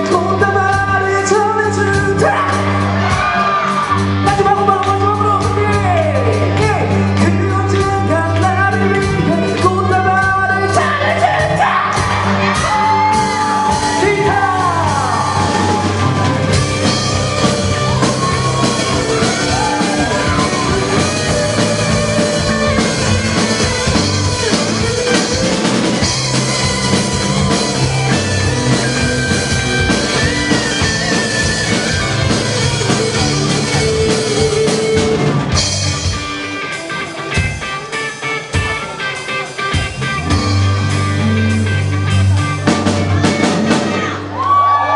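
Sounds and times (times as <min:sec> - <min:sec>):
person singing and shouting: 0:00.0 - 0:35.4
rock band playing: 0:00.0 - 0:44.9.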